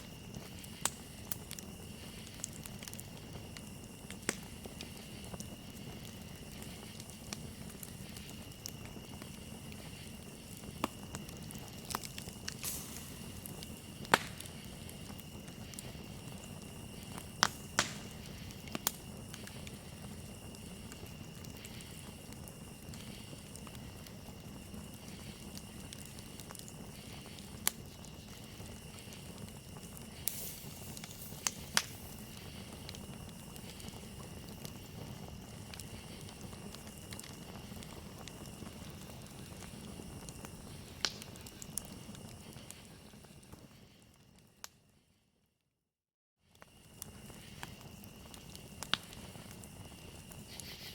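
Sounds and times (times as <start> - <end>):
campfire crackling and popping: 0.0 - 44.8, 46.5 - 50.9
crickets chirring: 0.0 - 45.0, 46.5 - 50.9.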